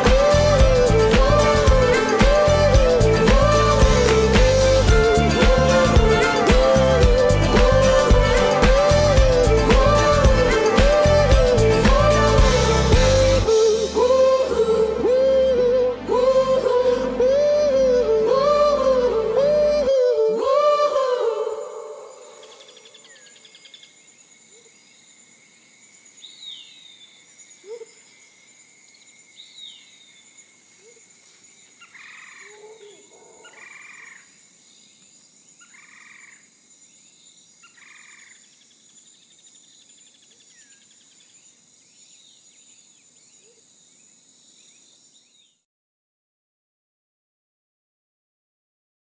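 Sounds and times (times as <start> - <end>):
pop song singing: 0.0 - 22.3
high-pitched hiss: 0.0 - 23.3.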